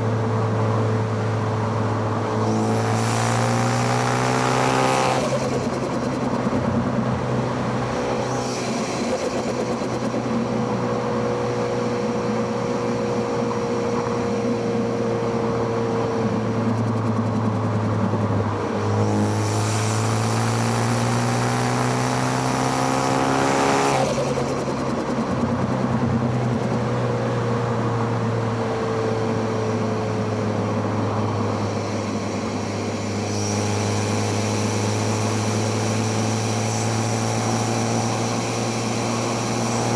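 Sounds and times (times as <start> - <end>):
car engine revving and slowing: 18.8 - 26.7.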